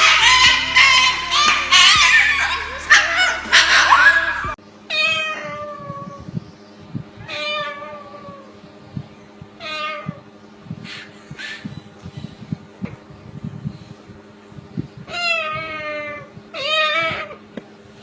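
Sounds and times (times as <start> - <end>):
music with singing: 0.0 - 4.6.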